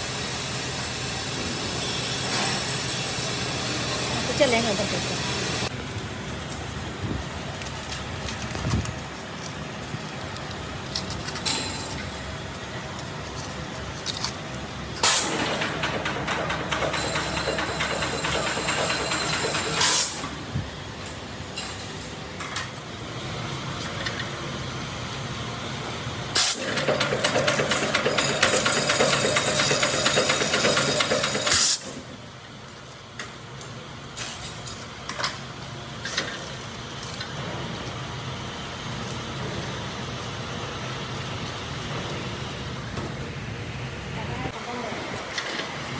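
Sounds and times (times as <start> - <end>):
machinery hum: 35.5 - 45.9.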